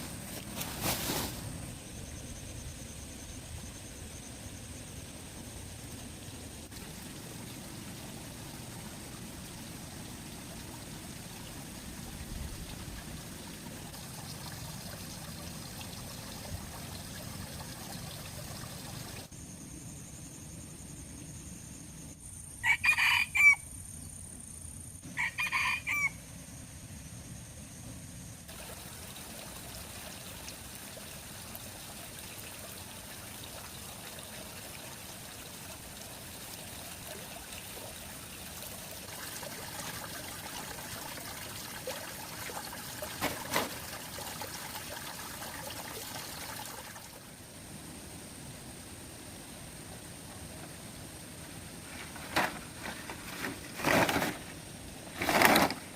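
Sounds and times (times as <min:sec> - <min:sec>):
running water trickling: 0:05.9 - 0:19.3, 0:28.5 - 0:47.3
rooster crowing: 0:22.6 - 0:23.6, 0:25.1 - 0:26.2.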